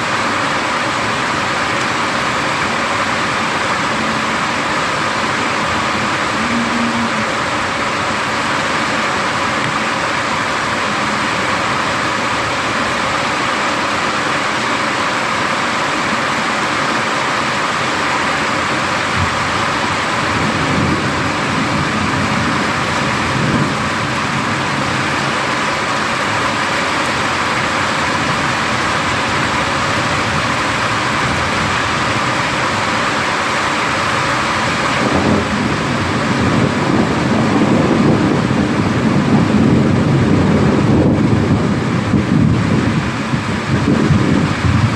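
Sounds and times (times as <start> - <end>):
heavy rain hissing: 0.0 - 44.9
thunder rumbling: 1.1 - 13.4, 19.1 - 26.6, 34.6 - 44.9.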